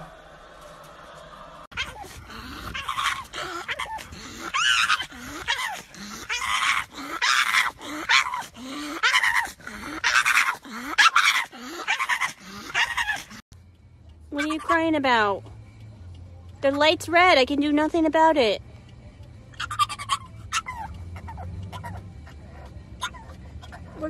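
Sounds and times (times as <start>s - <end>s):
dog making vocal calls: 1.7s - 13.4s, 14.4s - 14.9s, 19.5s - 24.0s.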